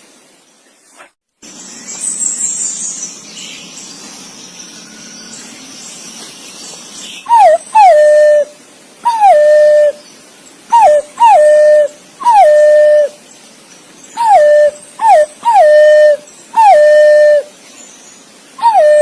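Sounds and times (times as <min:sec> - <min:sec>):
pigeon whistled calls: 0:07.2 - 0:08.5, 0:09.1 - 0:10.0, 0:10.7 - 0:13.2, 0:14.2 - 0:17.5, 0:18.6 - 0:19.0.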